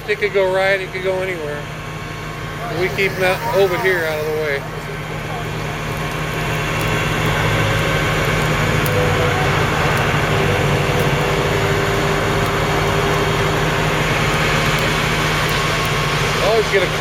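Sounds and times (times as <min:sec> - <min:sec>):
diesel engine running under load: 0:04.6 - 0:17.0.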